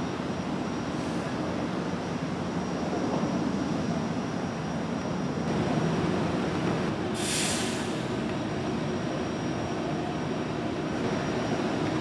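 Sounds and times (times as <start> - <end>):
train running: 0.0 - 12.0
air hissing: 7.2 - 8.1.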